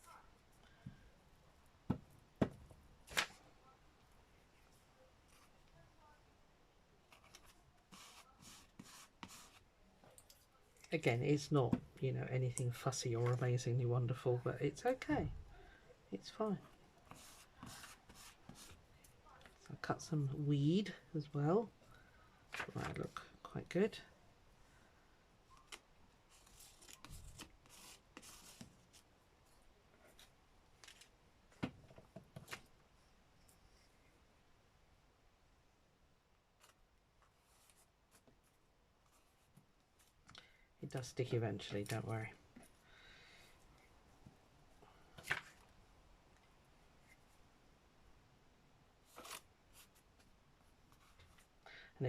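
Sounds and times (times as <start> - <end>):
paper rustling: 25.6 - 29.1, 45.2 - 45.7, 49.0 - 50.3.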